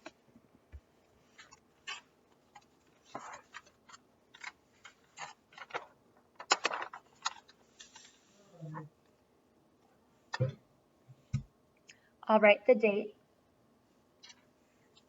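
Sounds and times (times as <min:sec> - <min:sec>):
paper rustling: 0:01.1 - 0:08.4.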